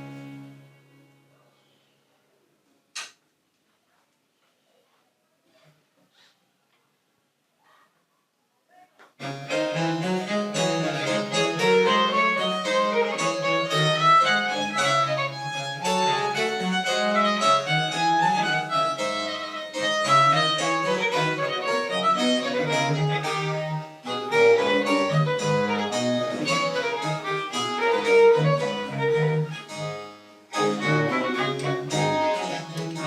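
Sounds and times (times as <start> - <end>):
violin melody: 9.2 - 33.0
harpsichord: 9.4 - 33.0
bowed bass line: 30.6 - 33.0.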